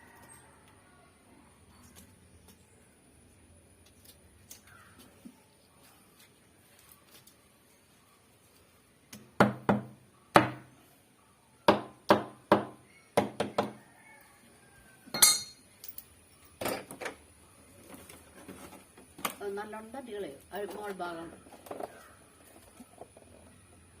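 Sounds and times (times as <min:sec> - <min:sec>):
sharp knocks on hard object: 0:09.4 - 0:10.7, 0:11.7 - 0:13.8
clinking rattle: 0:15.2 - 0:16.1.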